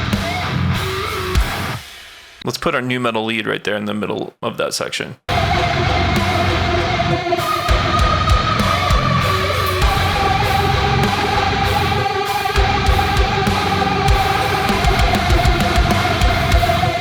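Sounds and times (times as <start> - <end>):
metal lead guitar line: 0.0 - 1.9, 5.3 - 17.0
heavy distorted guitars: 0.0 - 2.3, 5.3 - 17.0
kick drums: 14.1 - 16.7.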